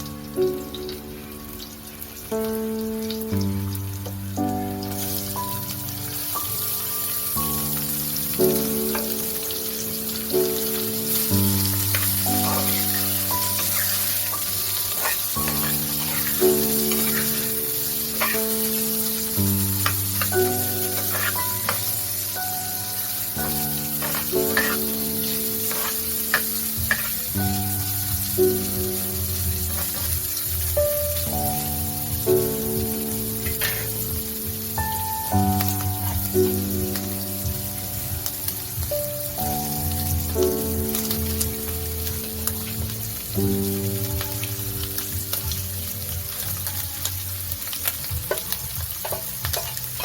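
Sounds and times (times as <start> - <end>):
background music with held chords: 0.0 - 50.0
rice sizzling in oil: 0.0 - 50.0
spatula scraping a pan: 11.0 - 22.3, 23.4 - 27.3, 29.3 - 30.7, 33.4 - 34.2.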